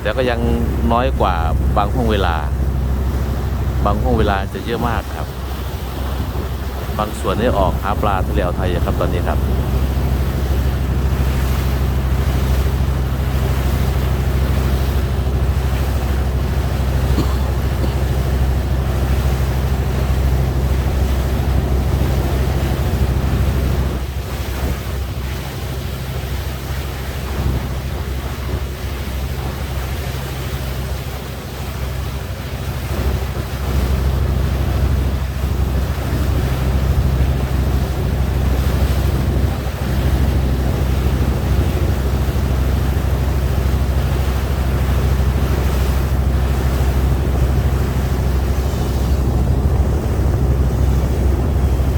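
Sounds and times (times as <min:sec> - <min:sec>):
boat engine droning: 0:00.0 - 0:51.9
wind buffeting microphone: 0:05.2 - 0:07.0, 0:32.6 - 0:51.9.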